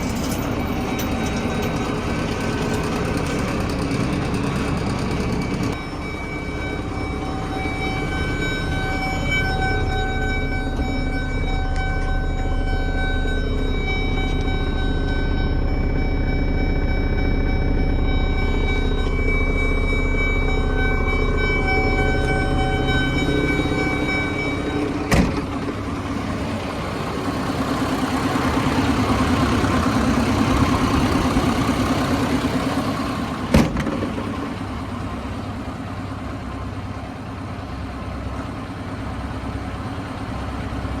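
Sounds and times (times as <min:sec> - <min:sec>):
diesel truck engine running: 0:00.0 - 0:41.0
electronic warning tone: 0:05.4 - 0:25.2.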